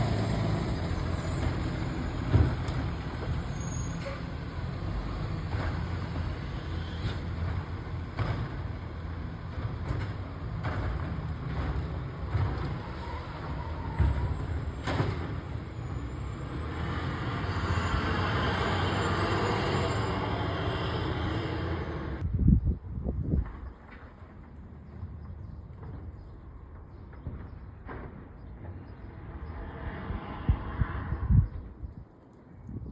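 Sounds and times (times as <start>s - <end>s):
knocks and clanks: 7.1s - 8.9s, 9.5s - 13.1s, 26.8s - 28.9s.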